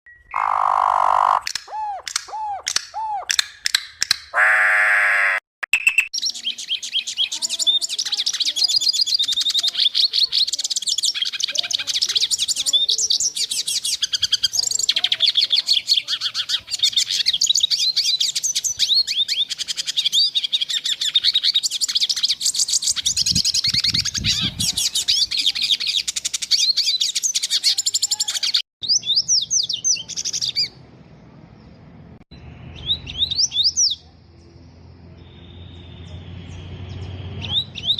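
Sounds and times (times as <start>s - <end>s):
flock of birds chirping: 0.2s - 2.7s, 6.2s - 30.8s.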